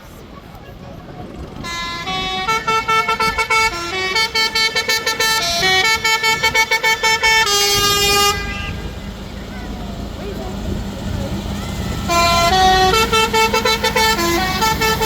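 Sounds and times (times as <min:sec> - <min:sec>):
musical vehicle horn tune: 0:01.6 - 0:09.3, 0:12.0 - 0:15.0.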